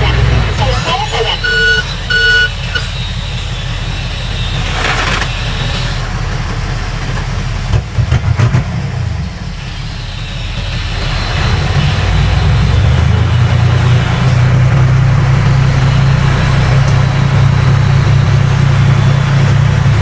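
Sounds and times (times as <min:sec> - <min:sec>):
diesel machinery engine rumble: 0:00.0 - 0:20.0.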